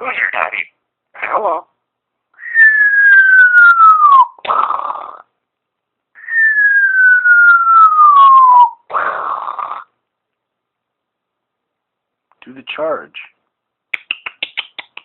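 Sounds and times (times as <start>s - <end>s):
parrot whistling: 2.4s - 4.4s, 6.2s - 8.9s.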